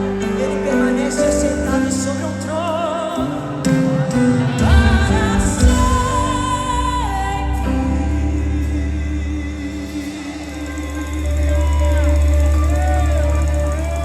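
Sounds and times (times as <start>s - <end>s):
woman singing with vibrato: 0.0s - 13.0s
gospel band with bass and keyboards: 0.0s - 14.0s.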